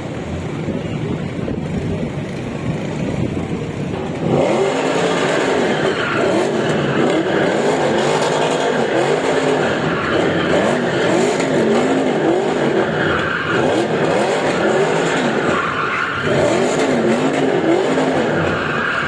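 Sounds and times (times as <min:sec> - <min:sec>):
sports car engines revving: 0:00.0 - 0:19.0.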